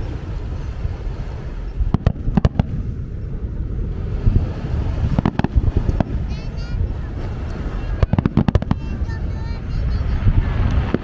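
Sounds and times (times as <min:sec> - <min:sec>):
continuous low rumble: 0:00.0 - 0:11.0
fireworks bangs: 0:01.9 - 0:03.4, 0:04.1 - 0:11.0.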